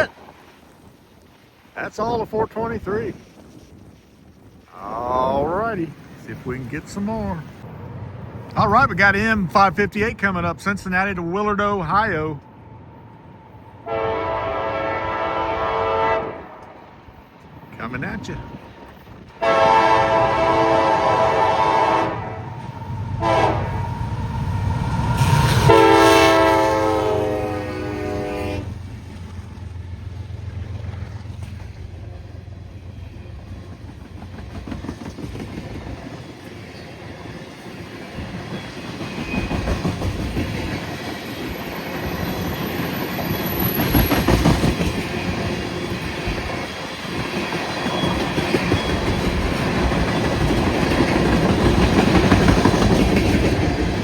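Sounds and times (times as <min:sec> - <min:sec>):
diesel locomotive rumble: 0:05.1 - 0:16.2, 0:17.0 - 0:54.0
train horn blasts: 0:13.8 - 0:16.8, 0:19.4 - 0:24.0, 0:25.2 - 0:28.8
freight cars clickety-clack: 0:29.0 - 0:54.0.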